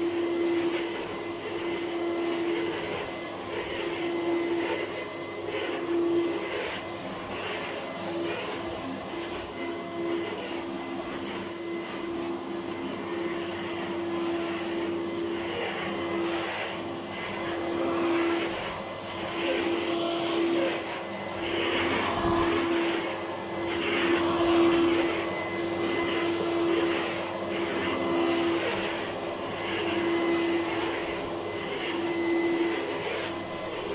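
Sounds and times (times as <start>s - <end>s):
vacuum cleaner motor whine: 0.0s - 33.9s.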